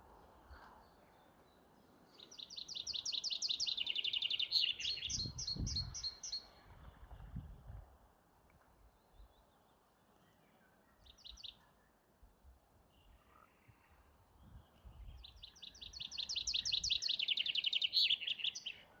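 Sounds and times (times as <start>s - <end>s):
songbird singing trill: 0.9s - 6.6s, 10.8s - 11.6s, 14.4s - 19.0s.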